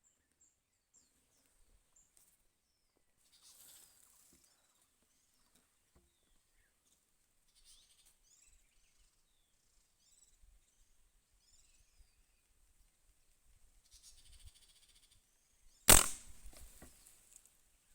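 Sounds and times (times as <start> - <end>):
small birds chirping: 0.0 - 12.5.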